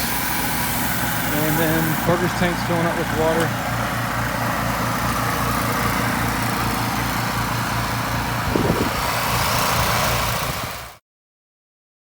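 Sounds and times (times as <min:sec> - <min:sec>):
water spray hissing: 0:00.0 - 0:02.1
gas engine running: 0:00.0 - 0:11.0.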